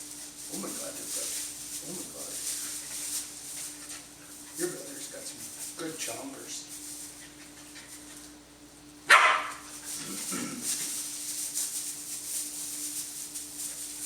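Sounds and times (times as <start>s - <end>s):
faint steady hum: 0.0s - 14.0s
puppy barking: 9.1s - 9.7s.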